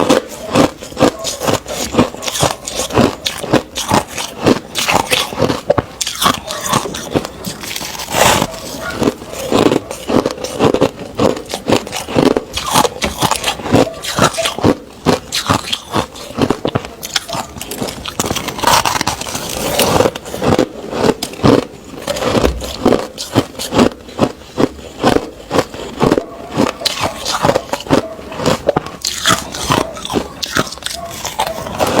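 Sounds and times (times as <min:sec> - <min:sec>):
chewing crushed ice: 0:00.0 - 0:32.0.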